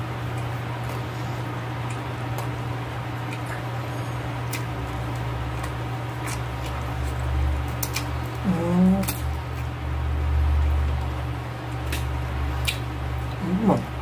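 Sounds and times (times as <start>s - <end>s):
steady low hum: 0.0s - 14.0s
chewing and fork clicks: 7.7s - 8.1s.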